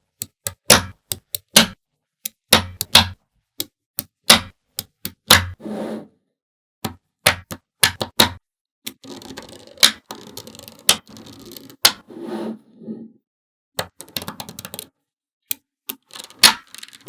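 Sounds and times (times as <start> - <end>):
magnetic balls clicking together: 0.2 - 5.6, 15.9 - 17.0.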